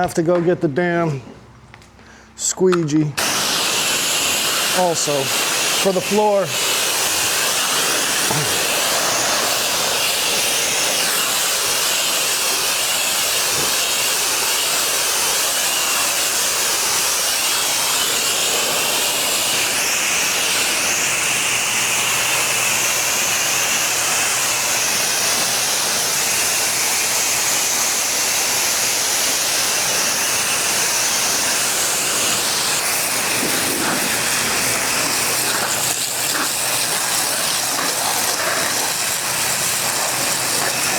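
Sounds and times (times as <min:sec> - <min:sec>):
pressure washer spray hiss: 0:03.2 - 0:40.9
washer engine humming: 0:03.2 - 0:40.9.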